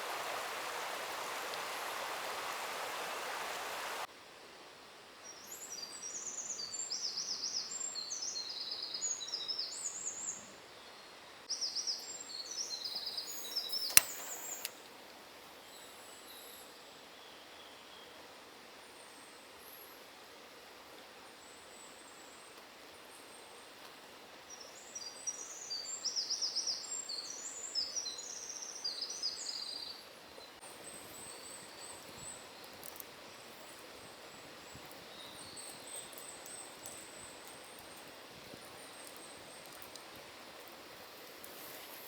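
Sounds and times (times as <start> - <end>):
songbird singing: 0.0 - 4.1, 5.2 - 14.9, 24.5 - 42.0
stream water rushing: 0.0 - 4.1
faint thin bird calls: 12.8 - 14.8.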